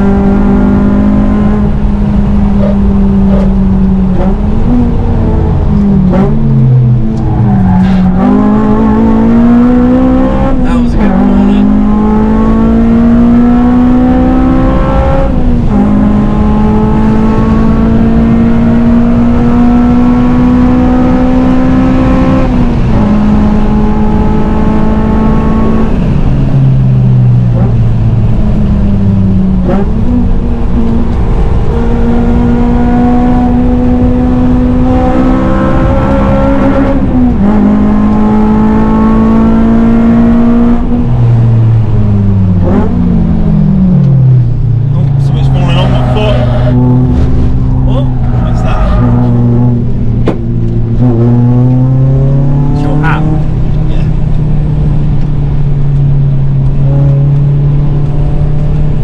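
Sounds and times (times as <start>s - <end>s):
car engine accelerating hard: 0.0s - 59.0s.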